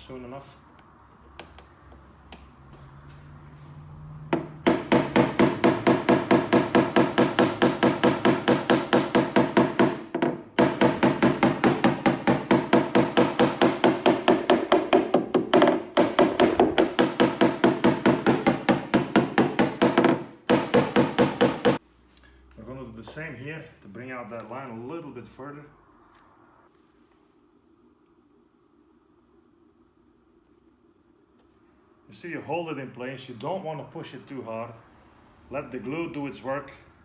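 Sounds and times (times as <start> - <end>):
hammer tapping on sheet metal: 4.4 - 21.8.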